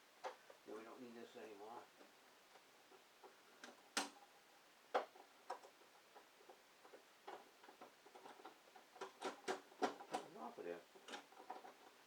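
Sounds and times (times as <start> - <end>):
faint clicks and taps: 0.2 - 0.7, 1.4 - 12.0.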